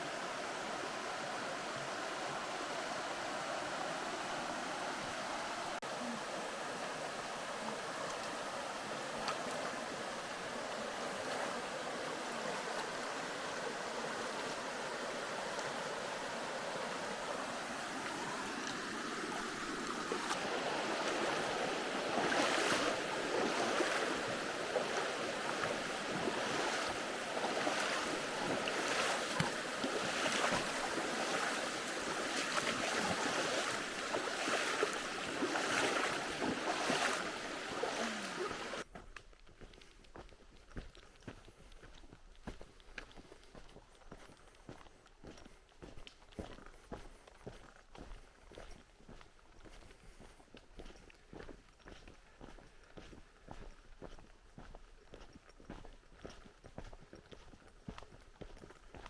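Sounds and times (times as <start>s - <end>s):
river water rushing: 0.0s - 38.9s
footsteps through water: 8.0s - 14.6s, 17.4s - 59.0s.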